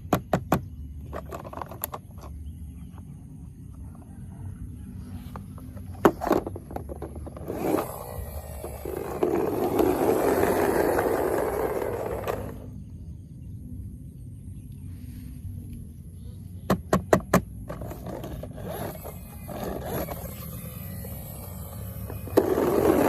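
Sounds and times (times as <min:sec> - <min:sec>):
rough scraping: 0:05.6 - 0:12.7, 0:17.7 - 0:23.0.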